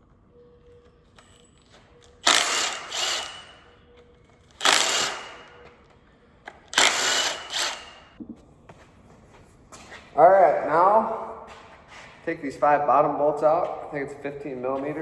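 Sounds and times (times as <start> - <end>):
power tool running: 2.2 - 3.7, 4.6 - 5.6, 6.7 - 8.2.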